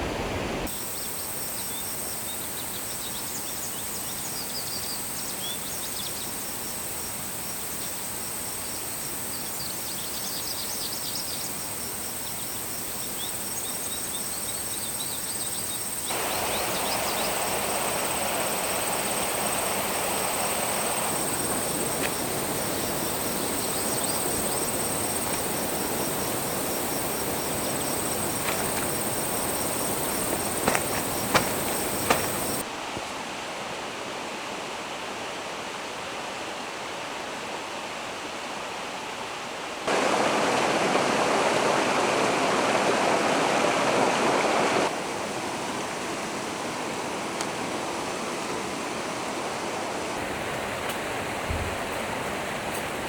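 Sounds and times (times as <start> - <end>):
steady rushing noise: 16.1 - 32.6, 39.9 - 45.0
sharp crackles: 30.0 - 32.6.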